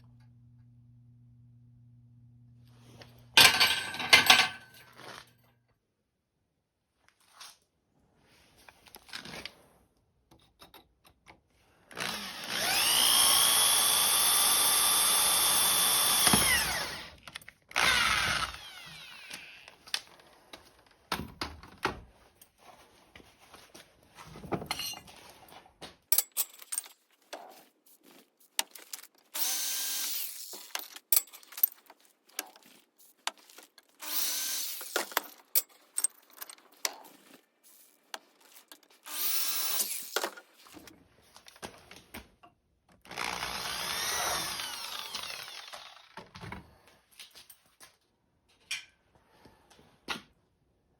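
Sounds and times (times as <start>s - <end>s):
tool handling clicks and knocks: 3.4s - 5.2s, 10.3s - 11.5s, 24.3s - 29.3s, 30.6s - 34.0s, 34.8s - 37.4s
electric power drill running: 11.9s - 19.8s, 29.4s - 30.7s, 34.0s - 35.2s, 39.0s - 40.2s, 43.0s - 46.2s.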